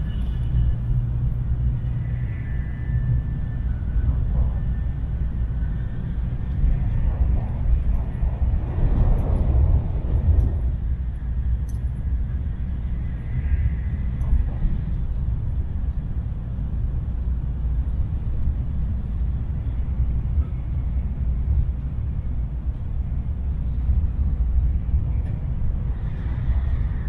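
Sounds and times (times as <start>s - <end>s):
train cabin rumble: 0.0s - 27.0s.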